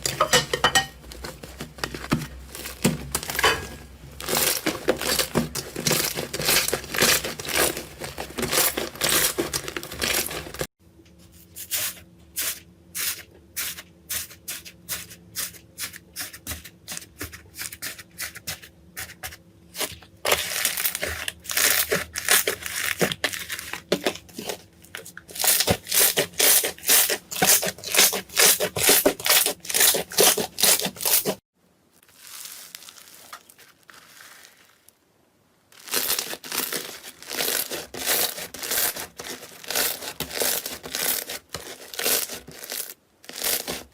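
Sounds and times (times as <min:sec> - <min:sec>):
slime crackling and popping: 0:04.2 - 0:10.7, 0:32.0 - 0:35.0, 0:35.7 - 0:43.9.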